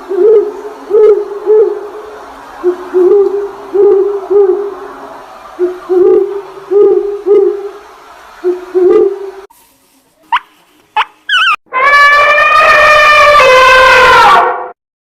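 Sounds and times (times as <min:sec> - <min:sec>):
bird hooting: 0:00.0 - 0:04.9, 0:05.6 - 0:07.8, 0:08.4 - 0:09.4.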